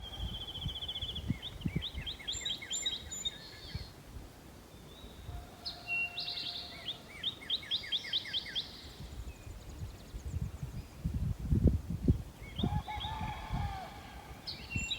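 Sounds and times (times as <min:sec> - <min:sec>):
songbird singing: 0:00.0 - 0:04.0, 0:04.7 - 0:11.1, 0:12.1 - 0:14.9.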